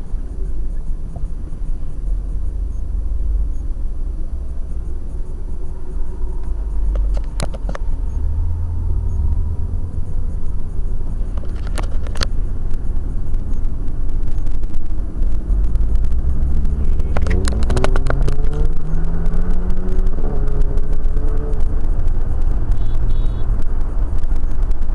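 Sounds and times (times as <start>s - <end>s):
car road and engine rumble: 0.0s - 24.9s
sharp clicks: 10.6s - 24.9s.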